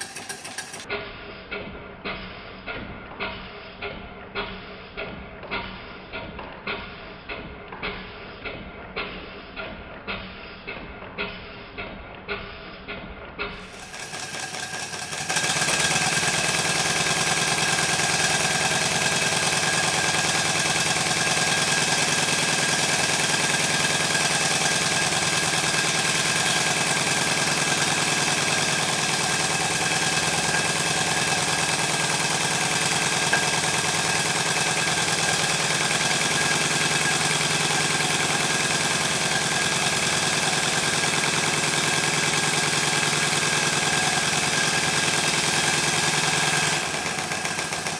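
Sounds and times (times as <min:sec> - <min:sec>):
model traction engine exhaust beating: 0:00.0 - 0:00.9, 0:13.5 - 0:47.9.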